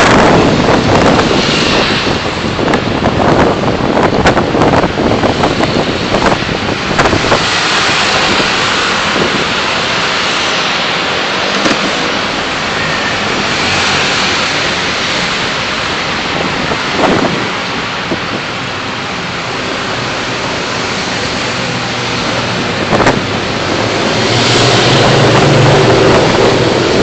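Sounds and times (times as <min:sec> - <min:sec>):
car driving road noise: 0:00.0 - 0:27.0.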